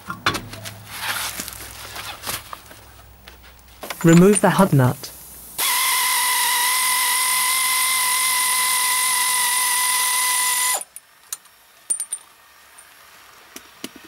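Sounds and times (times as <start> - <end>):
power tool whining: 5.6 - 10.9.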